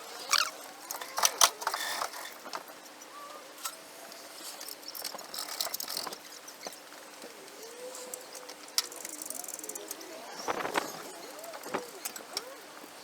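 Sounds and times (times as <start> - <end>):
faint bird calls: 2.8 - 5.0.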